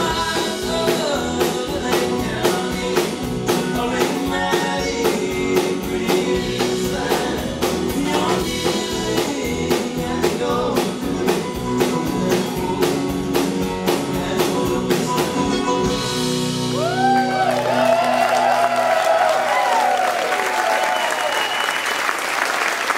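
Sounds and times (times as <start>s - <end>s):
live band playing: 0.0s - 22.2s
audience whistling: 16.7s - 22.9s.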